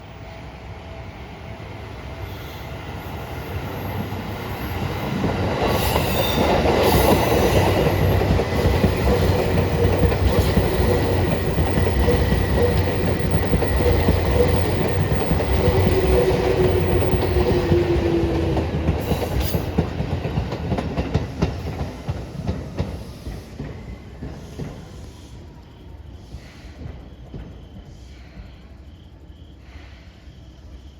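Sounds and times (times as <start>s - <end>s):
electric train passing: 0.0s - 30.9s
train wheel clatter: 4.0s - 28.7s.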